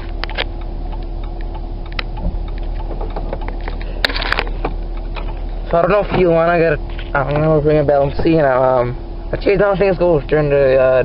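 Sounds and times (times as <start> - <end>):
sharp clicks: 0.0 - 5.4
car engine idling: 0.0 - 11.0
engine ticking: 0.0 - 11.0.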